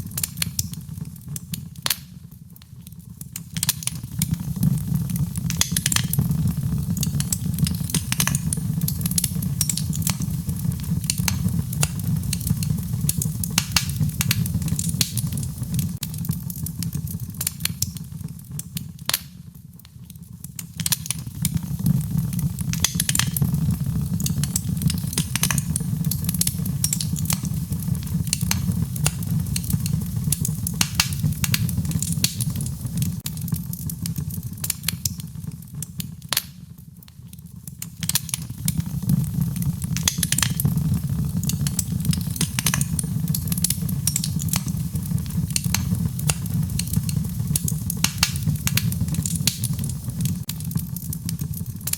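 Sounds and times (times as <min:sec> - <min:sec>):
wood fire crackling and popping: 0:00.0 - 0:51.9
rain: 0:38.0 - 0:51.9.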